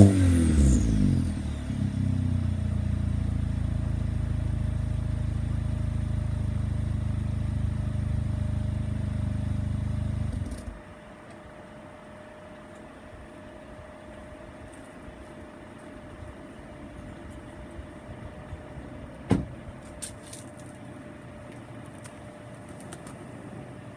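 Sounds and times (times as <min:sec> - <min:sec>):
car engine idling: 0:00.0 - 0:23.9.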